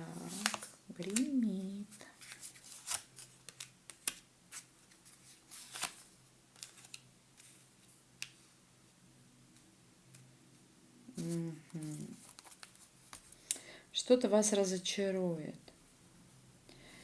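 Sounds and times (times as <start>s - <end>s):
cards being shuffled: 0.2s - 1.5s, 2.2s - 7.6s, 11.2s - 13.5s.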